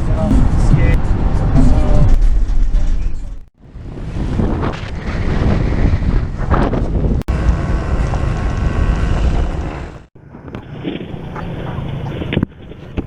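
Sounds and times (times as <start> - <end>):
wind buffeting microphone: 0.0 - 10.1
dirt bike engine running: 7.3 - 10.3.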